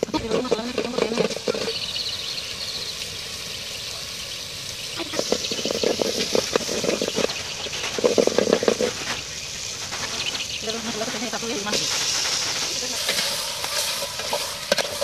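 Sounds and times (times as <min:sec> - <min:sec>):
metal spoon stirring in pot: 0:00.0 - 0:02.1, 0:05.1 - 0:09.2, 0:11.7 - 0:15.0
spices sizzling in hot oil: 0:00.0 - 0:15.0.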